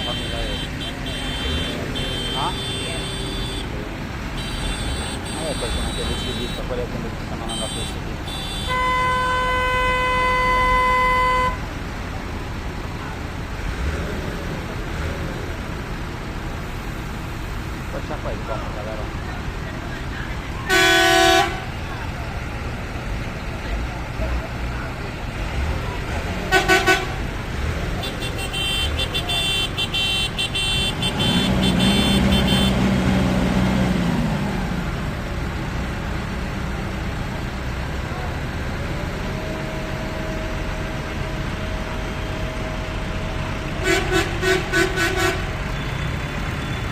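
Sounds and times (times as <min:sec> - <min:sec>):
vehicle horn: 0:00.0 - 0:11.7, 0:20.6 - 0:21.8, 0:26.5 - 0:27.3, 0:28.0 - 0:33.0, 0:43.7 - 0:45.6
low engine rumble: 0:00.0 - 0:46.9
rapidly chopped horn pattern: 0:28.0 - 0:32.8.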